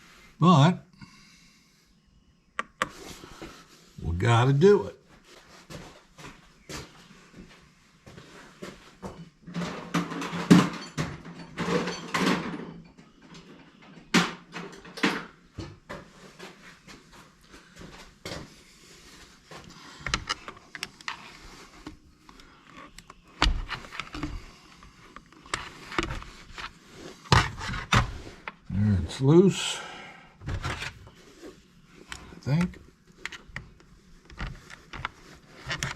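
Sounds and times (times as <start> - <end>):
tools scraping and clicking on plastic: 19.6 - 28.6, 32.1 - 35.9.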